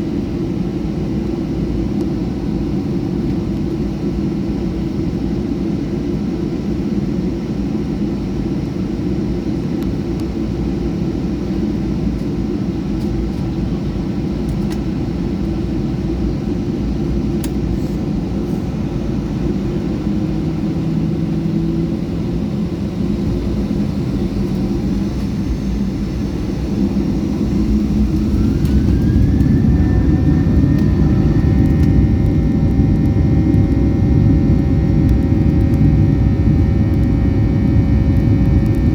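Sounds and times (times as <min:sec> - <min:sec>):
airplane cabin engine rumble: 0:00.0 - 0:38.9
jet engines spooling up: 0:16.8 - 0:38.9.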